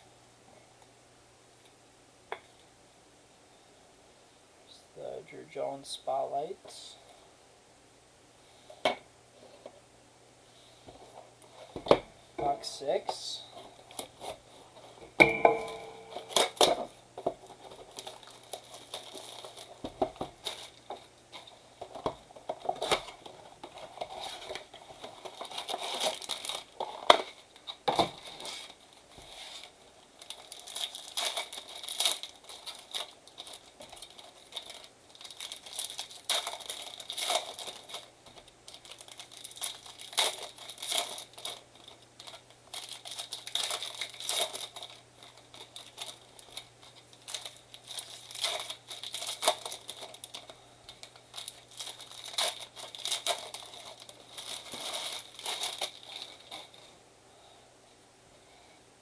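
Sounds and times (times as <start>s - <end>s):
plastic wrap crinkling and tearing: 13.5s - 15.0s, 15.6s - 57.0s.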